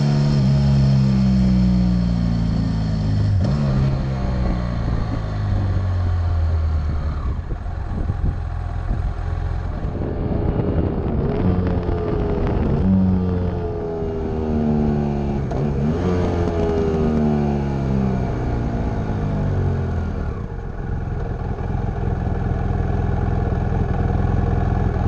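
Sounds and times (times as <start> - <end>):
motorcycle engine accelerating: 0.0 - 25.0
wind noise on microphone: 3.4 - 17.1.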